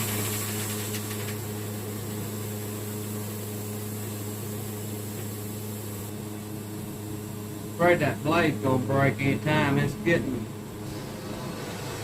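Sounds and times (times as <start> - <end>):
sawmill engine humming: 7.0 - 12.0.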